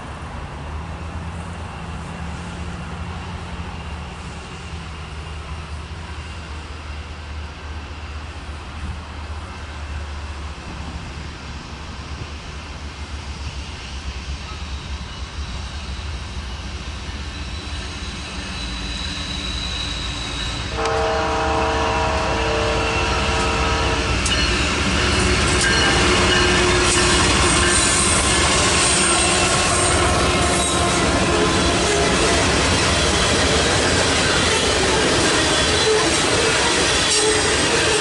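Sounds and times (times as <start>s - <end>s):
diesel locomotive rumble: 0.0s - 38.0s
train wheel noise and rail clicks: 0.0s - 38.0s
high-pitched wheel squeal: 17.0s - 32.6s
train air horn blast: 20.7s - 24.3s.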